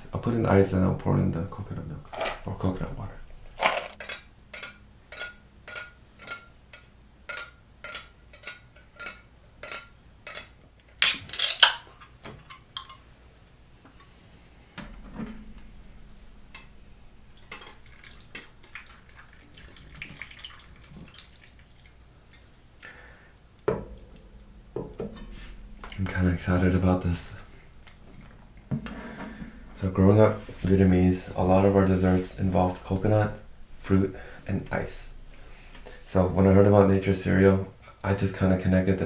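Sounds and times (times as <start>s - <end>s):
ice cubes clinking into a bowl: 7.3s - 12.1s
liquid poured over ice: 17.4s - 22.8s.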